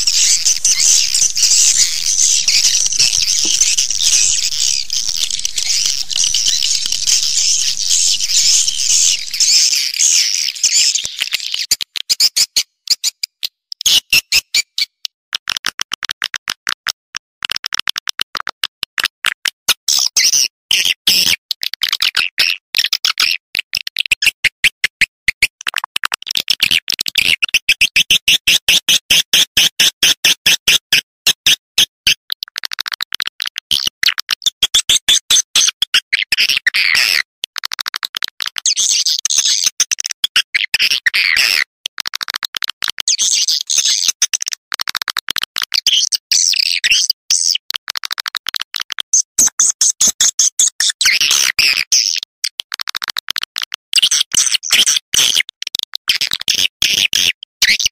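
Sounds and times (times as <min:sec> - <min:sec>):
swiftlets twittering chirps: 0:00.0 - 0:11.7.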